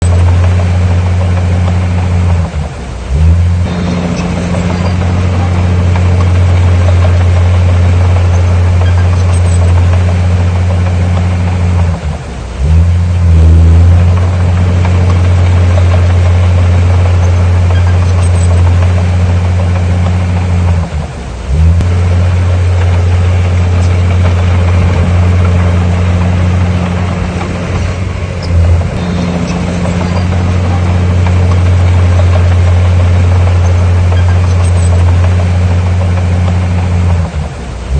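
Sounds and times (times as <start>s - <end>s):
heavy diesel engine running: 0.0s - 37.9s.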